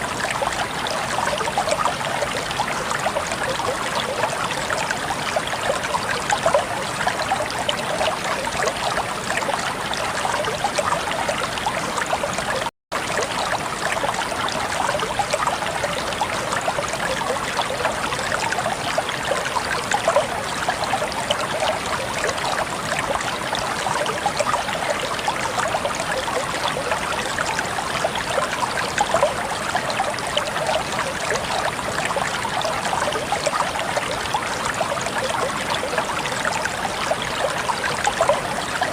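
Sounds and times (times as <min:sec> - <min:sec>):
stream water trickling: 0:00.0 - 0:38.9.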